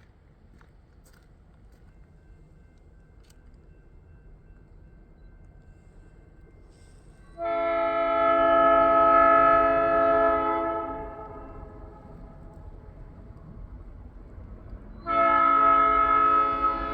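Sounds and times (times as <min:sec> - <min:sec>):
locomotive air horn blast: 0:07.4 - 0:11.6, 0:15.1 - 0:16.9.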